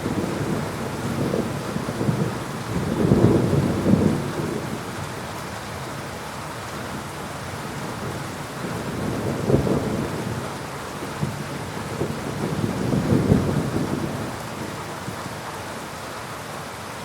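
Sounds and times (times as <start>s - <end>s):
thunder rumbling: 0.0s - 5.0s, 7.8s - 10.6s, 11.2s - 14.7s
heavy rain falling: 0.0s - 17.0s.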